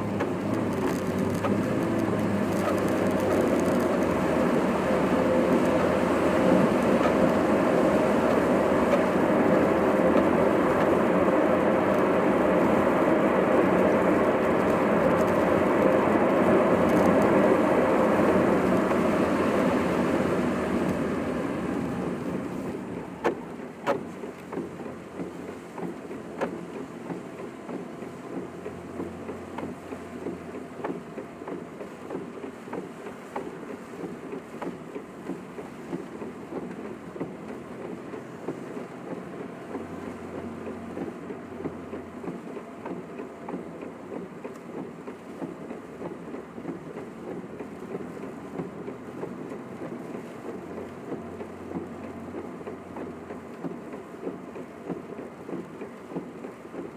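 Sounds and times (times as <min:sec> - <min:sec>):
road and wind noise: 0:00.0 - 0:56.9
light ticks: 0:00.2 - 0:04.2, 0:14.6 - 0:16.0, 0:16.8 - 0:17.4, 0:23.2 - 0:56.9.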